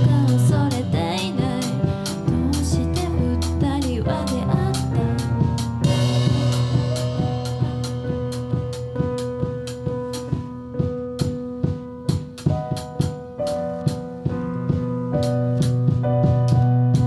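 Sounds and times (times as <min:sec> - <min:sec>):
sustained bass notes: 0:00.0 - 0:10.7
drum kit steady beat: 0:00.0 - 0:17.0
keyboard notes: 0:00.0 - 0:17.0.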